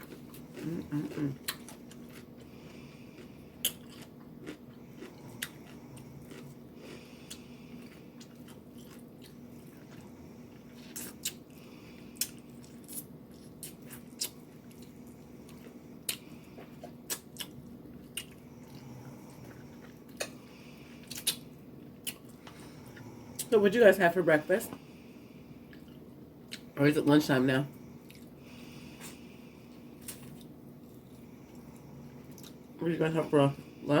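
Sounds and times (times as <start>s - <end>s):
chewing and biting food: 0.0s - 23.5s, 28.0s - 32.7s
faint low hum: 0.0s - 34.0s.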